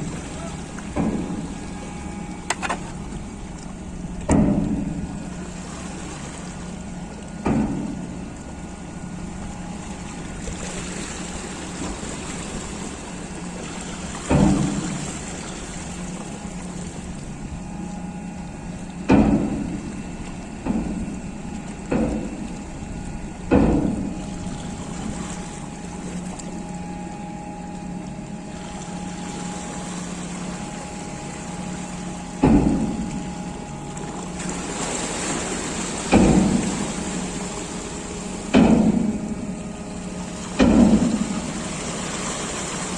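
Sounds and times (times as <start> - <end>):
lifting machinery hum: 0.0 - 42.9
heavy ringing knocks: 0.8 - 5.1, 7.4 - 8.2, 14.1 - 15.1, 18.9 - 19.9, 20.6 - 25.1, 31.0 - 33.9, 35.6 - 42.9.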